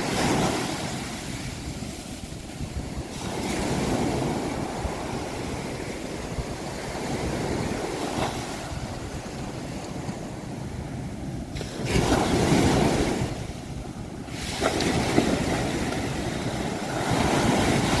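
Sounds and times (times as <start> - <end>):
wave breaking: 0.0 - 6.0, 11.5 - 18.0
ocean waves washing on shore: 0.0 - 18.0.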